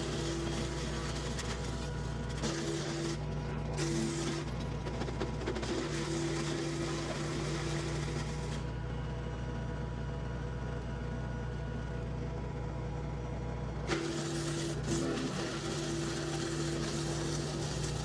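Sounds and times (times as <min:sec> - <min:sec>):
tractor diesel engine: 0:00.0 - 0:08.9
wood chipper droning: 0:00.0 - 0:18.0.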